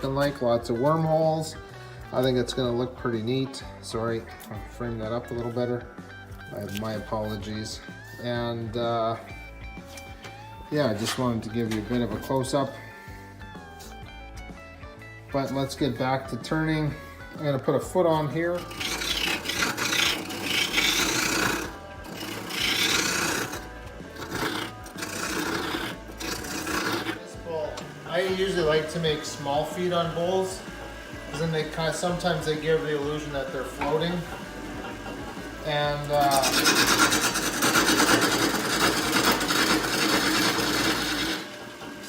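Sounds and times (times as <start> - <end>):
lathe tool scraping wood: 6.4 - 9.2, 15.3 - 42.0.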